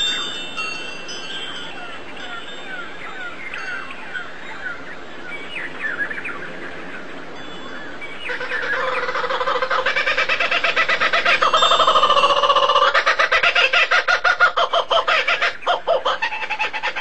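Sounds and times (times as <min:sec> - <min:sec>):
small birds chirping: 0:00.0 - 0:17.0
rapid pulsing bird call: 0:08.0 - 0:17.0.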